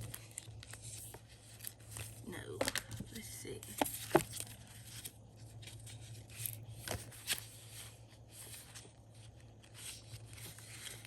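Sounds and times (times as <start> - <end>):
paper rustling and tapping: 0.0 - 5.8
low steady hum: 0.0 - 11.0.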